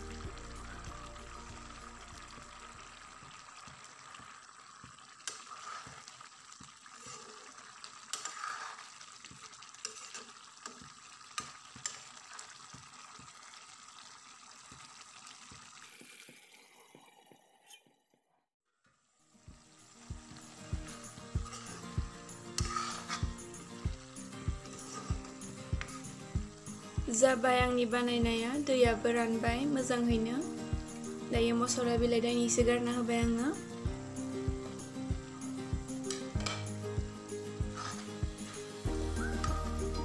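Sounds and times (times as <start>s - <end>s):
curry sizzling and bubbling: 0.0s - 18.3s, 18.9s - 40.0s
metal spatula scraping a pan: 5.2s - 12.6s, 20.8s - 26.3s, 36.1s - 36.7s, 37.6s - 39.5s.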